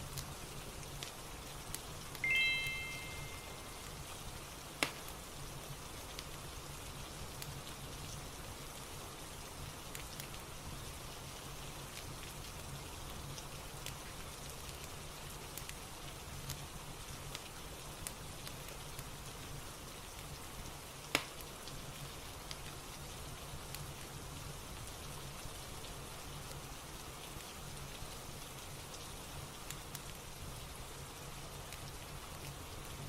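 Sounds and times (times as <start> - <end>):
fireplace crackles: 0.0 - 33.0
steady rain: 0.0 - 33.0
bright chime tones: 2.2 - 3.8.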